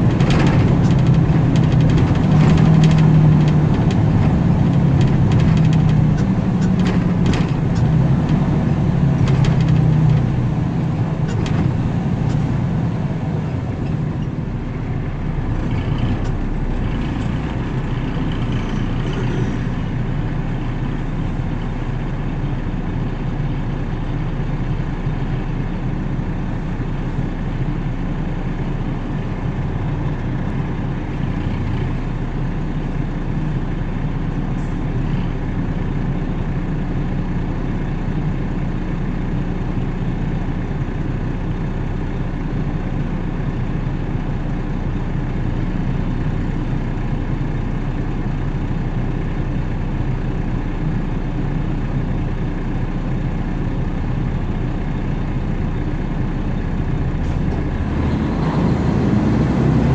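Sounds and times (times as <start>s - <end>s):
truck passing: 0.0s - 22.4s, 55.1s - 59.9s
car engine idling: 0.0s - 58.3s.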